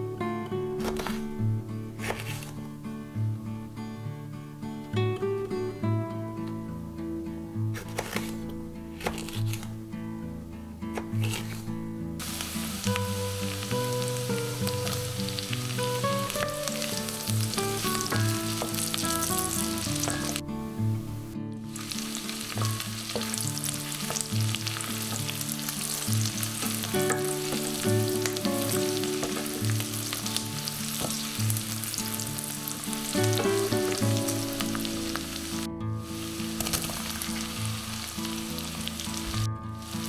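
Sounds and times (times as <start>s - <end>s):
food sizzling in a pot: 12.2s - 20.4s, 21.2s - 40.0s.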